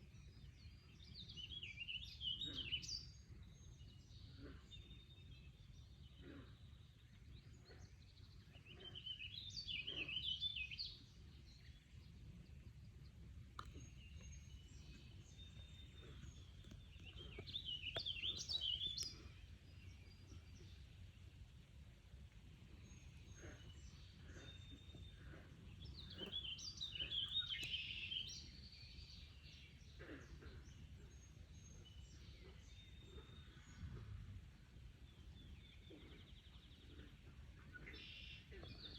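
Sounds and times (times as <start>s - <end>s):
songbird warbling: 13.6s - 20.8s, 23.3s - 28.8s.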